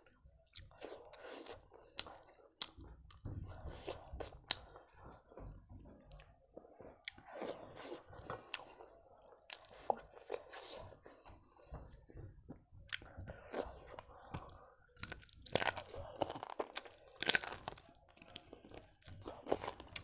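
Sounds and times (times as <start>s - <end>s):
person chewing food: 0.0s - 20.0s
crunchy bites: 12.9s - 20.0s.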